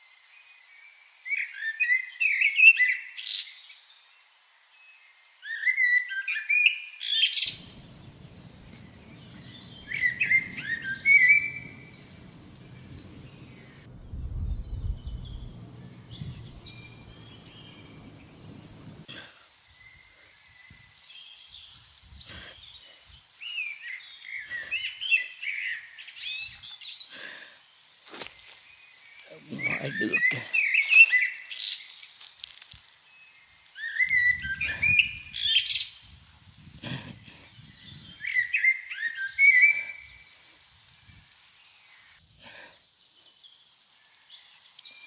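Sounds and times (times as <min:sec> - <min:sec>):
small birds chirping: 0:07.4 - 0:36.8
low steady rumble: 0:07.6 - 0:19.0.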